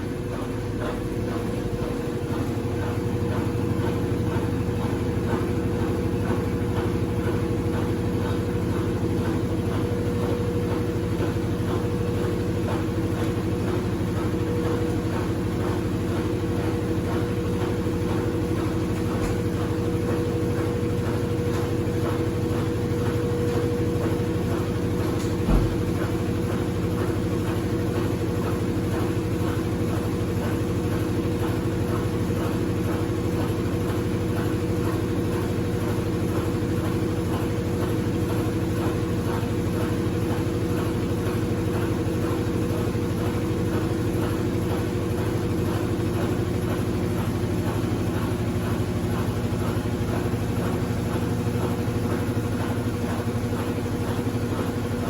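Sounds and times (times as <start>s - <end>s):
washing machine motor hum: 0.0s - 55.0s.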